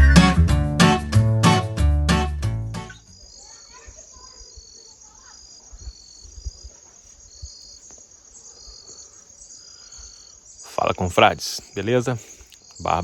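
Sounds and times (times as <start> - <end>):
crickets chirping: 2.8 - 13.0.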